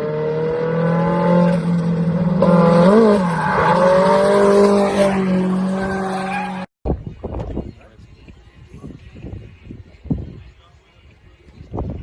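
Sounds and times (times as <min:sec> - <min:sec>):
car engine revving high: 0:00.0 - 0:06.7.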